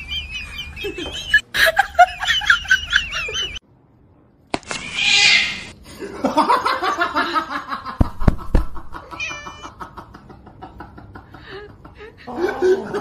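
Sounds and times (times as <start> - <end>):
sharp thumps: 8.0 - 9.0
kitten mewing: 9.1 - 9.7.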